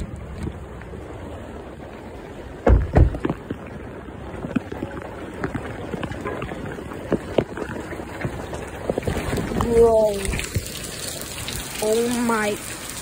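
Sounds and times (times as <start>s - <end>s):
heavy rain: 0.0s - 13.0s
wind: 0.0s - 13.0s
loud thumps: 2.6s - 3.5s.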